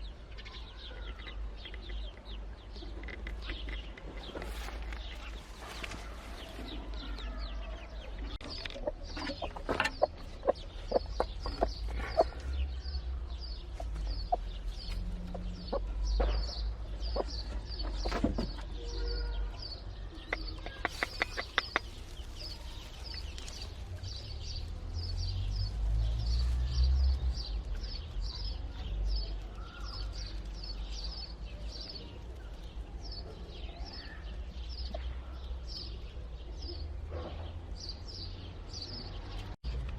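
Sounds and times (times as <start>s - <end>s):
chicks peeping: 0.4s - 37.5s
hen clucking: 8.0s - 18.7s, 20.1s - 22.7s.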